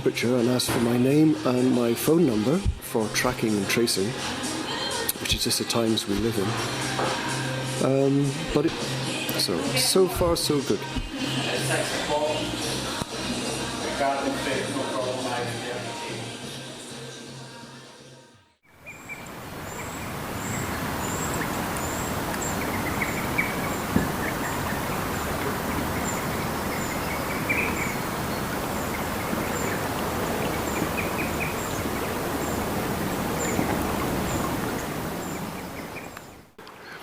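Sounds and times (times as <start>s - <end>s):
music: 0.0s - 36.2s
river running: 18.7s - 36.7s
other birds chirping: 18.7s - 37.0s
small bird chirping: 18.7s - 37.0s
voices: 19.2s - 35.7s.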